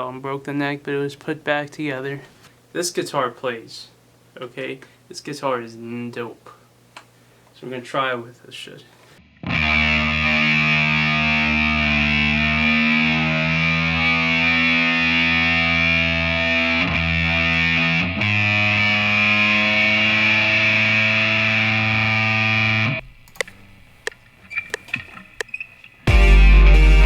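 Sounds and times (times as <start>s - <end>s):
distorted electric guitar chords: 9.2s - 23.2s, 26.1s - 27.0s.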